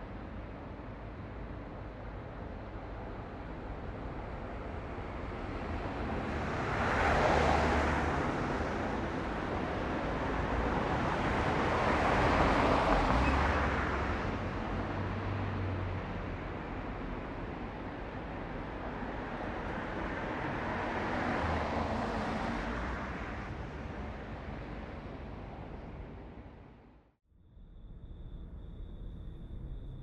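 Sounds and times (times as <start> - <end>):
vehicles passing: 3.9 - 27.0.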